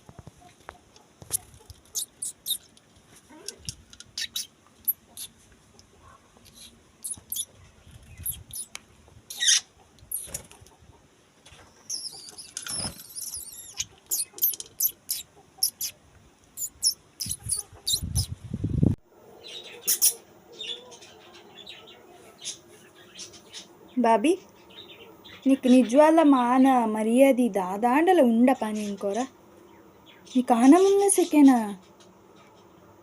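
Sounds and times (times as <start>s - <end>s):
small birds chirping: 0.0s - 10.9s, 11.5s - 18.4s, 19.4s - 26.6s, 28.4s - 32.8s.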